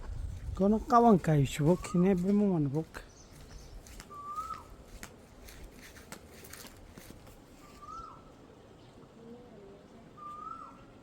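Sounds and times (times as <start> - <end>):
low background noise: 0.0 - 11.0
bird whistled call: 4.1 - 4.7, 7.7 - 8.3, 10.2 - 10.9.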